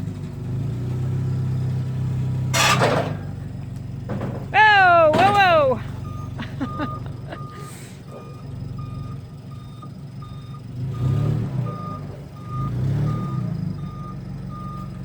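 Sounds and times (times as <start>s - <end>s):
reversing alarm beeping: 5.2s - 15.0s.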